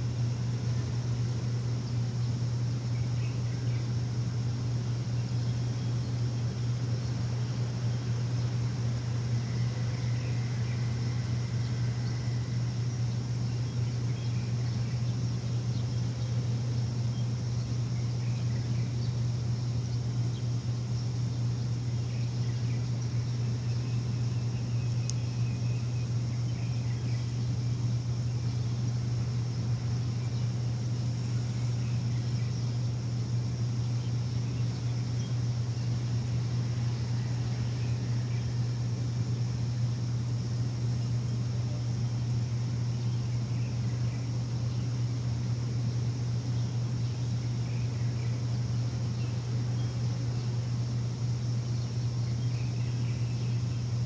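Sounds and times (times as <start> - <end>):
faint bird chirps: 0.0 - 54.0
machine humming: 0.0 - 54.0.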